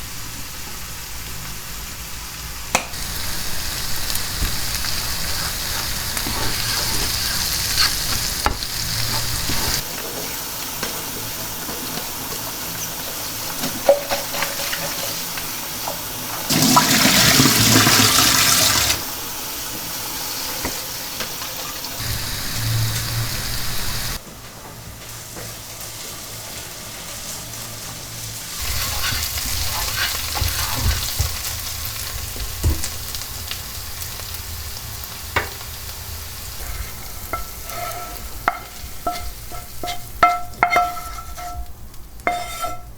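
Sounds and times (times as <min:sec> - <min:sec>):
food sizzling in oil: 0:00.1 - 0:24.2, 0:25.0 - 0:42.9
scrapes and clicks of stirring: 0:37.2 - 0:42.9.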